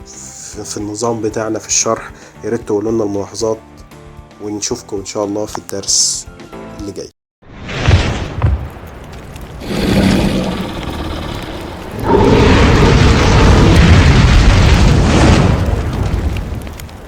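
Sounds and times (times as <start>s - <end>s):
booming rumble: 7.8s - 17.0s.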